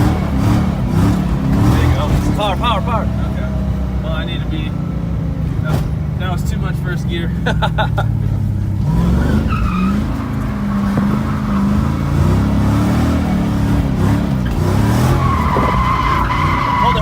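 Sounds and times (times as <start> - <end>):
car engine revving: 0.0 - 17.0
tire squeal: 8.8 - 17.0.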